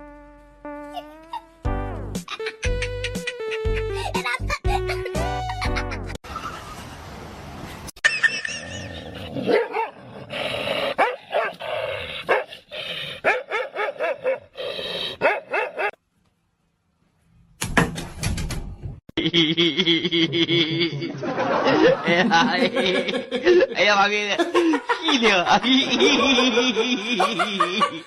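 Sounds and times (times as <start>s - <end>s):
dog barking and yipping: 9.5s - 10.0s, 11.0s - 11.6s, 12.3s - 12.5s, 13.2s - 14.5s, 15.2s - 16.0s.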